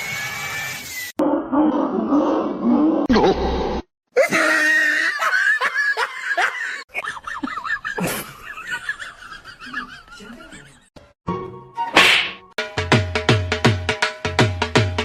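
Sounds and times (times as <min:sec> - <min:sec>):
high-pitched laughter: 0:04.2 - 0:10.9.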